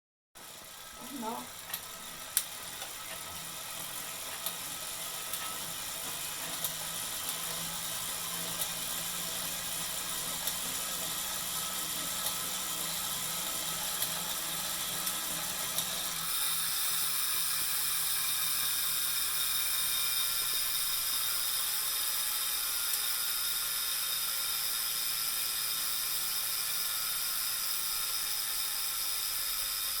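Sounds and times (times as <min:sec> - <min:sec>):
bike trainer whirring: 0:00.4 - 0:30.0.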